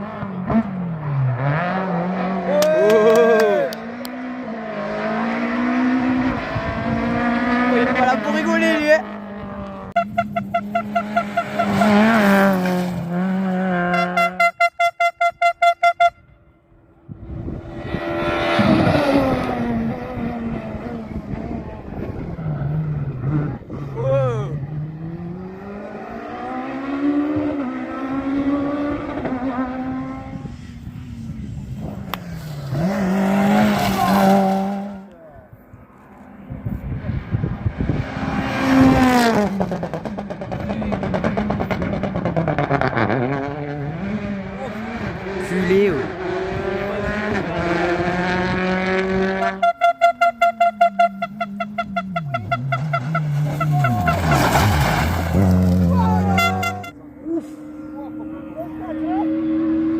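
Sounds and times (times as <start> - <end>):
rally car engine chopping: 0.0 - 14.5, 24.6 - 30.4, 37.4 - 59.9
rally car passing at speed: 0.0 - 14.5, 16.8 - 59.9.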